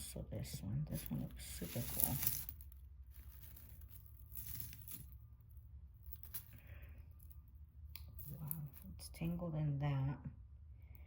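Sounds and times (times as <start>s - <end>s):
low steady hum: 0.0s - 11.0s
necklaces rustling: 0.9s - 9.4s.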